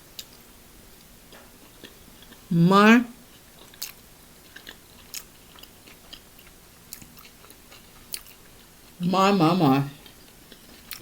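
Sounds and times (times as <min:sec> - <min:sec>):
person chewing wetly: 0:01.0 - 0:02.5, 0:03.3 - 0:09.1, 0:09.9 - 0:11.0.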